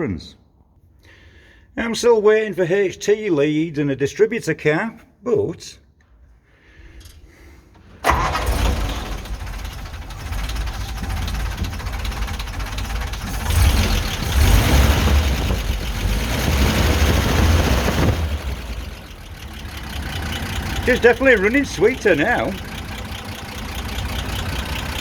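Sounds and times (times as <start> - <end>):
truck engine starting and running: 6.8 - 25.0.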